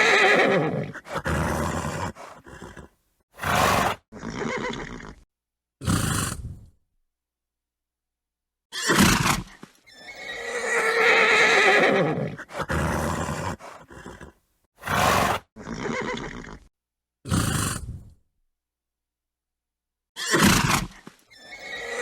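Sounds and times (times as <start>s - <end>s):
horse snorting: 0.0s - 5.2s, 5.8s - 6.7s, 8.9s - 16.7s, 17.3s - 18.2s
horse whinnying: 0.0s - 5.2s, 8.7s - 16.7s, 20.2s - 22.0s.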